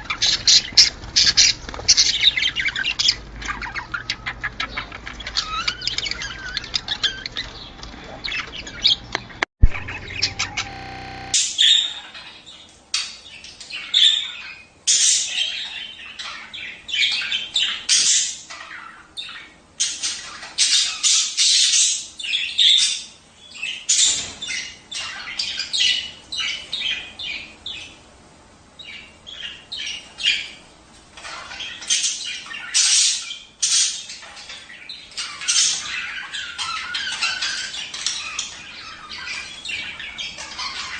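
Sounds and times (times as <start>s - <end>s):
budgerigars chattering and squawking: 0.0s - 11.3s.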